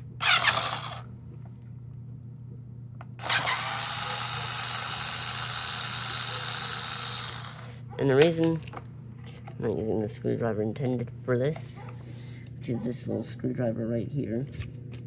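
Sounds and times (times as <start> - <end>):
cordless screwdriver whirring: 0.2 - 1.0, 3.2 - 7.7.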